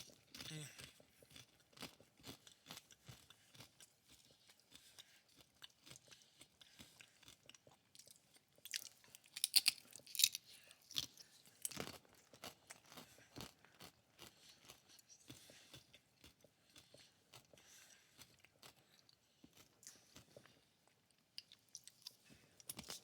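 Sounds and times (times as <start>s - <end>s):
crunching and chewing fried food: 0.0s - 23.0s
crispy wrapper crackling: 9.2s - 11.9s.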